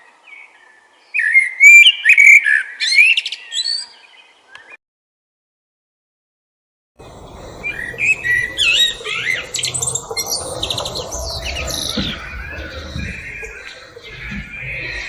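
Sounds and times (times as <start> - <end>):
low background rumble: 7.0 - 15.0
thrush singing whistled phrases: 7.0 - 15.0.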